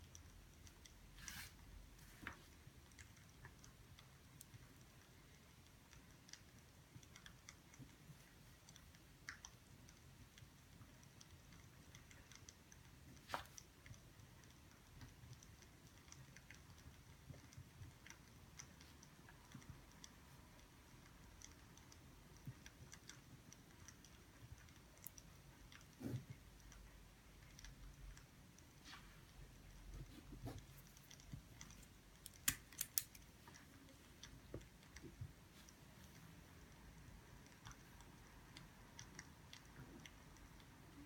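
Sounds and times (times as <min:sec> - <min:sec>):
faint small clicks and ticks: 0:00.0 - 0:41.0.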